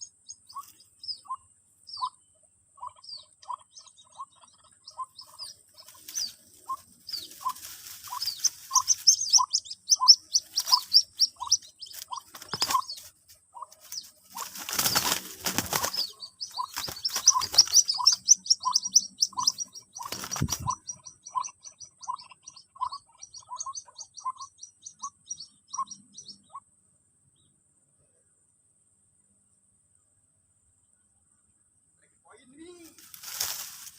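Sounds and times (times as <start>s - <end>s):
rapid high chirping: 0.0s - 2.2s, 2.8s - 26.6s
bird chick peeping: 0.0s - 26.7s
rustling: 5.2s - 18.4s, 19.3s - 20.9s, 32.8s - 33.9s.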